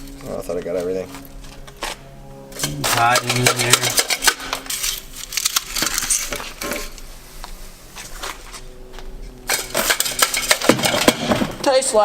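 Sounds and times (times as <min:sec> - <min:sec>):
metal debris scraped and rattled: 0:02.6 - 0:07.0, 0:09.5 - 0:12.0.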